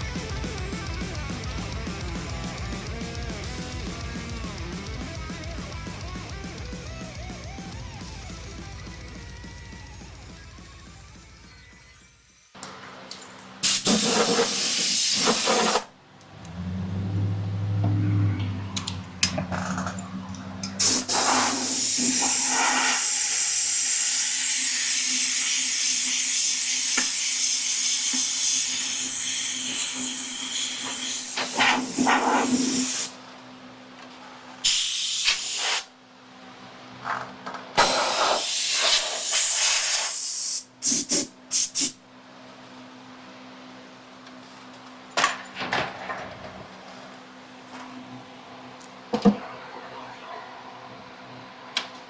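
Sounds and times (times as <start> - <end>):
pressurised hissing spray: 13.6 - 15.9, 20.8 - 33.2, 34.6 - 35.9, 37.8 - 41.9.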